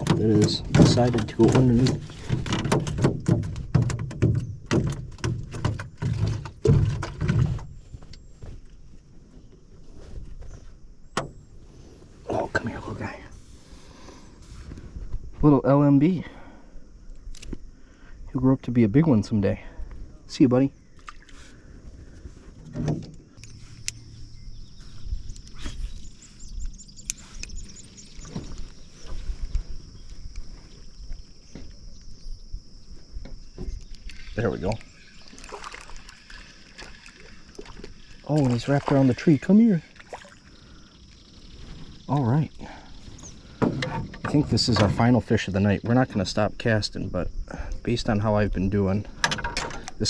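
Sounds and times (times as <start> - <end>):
knocks against canoe hull: 0.0 - 7.6, 43.5 - 45.1.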